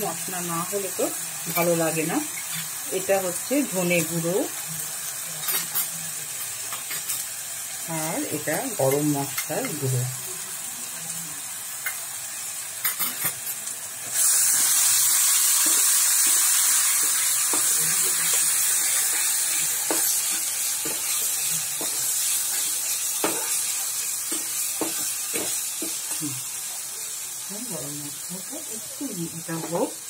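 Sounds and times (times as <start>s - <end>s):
food sizzling in oil: 0.0s - 30.0s
spatula scraping a pan: 14.1s - 26.2s.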